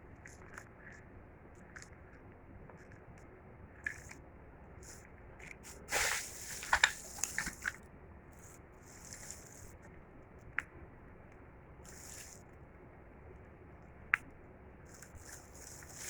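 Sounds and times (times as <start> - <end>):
packaging rustling: 5.7 - 7.8, 15.2 - 16.0.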